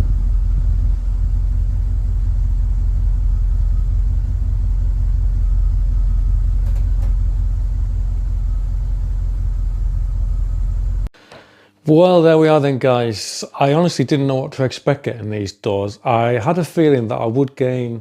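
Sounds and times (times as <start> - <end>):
steady low rumble: 0.0 - 11.1.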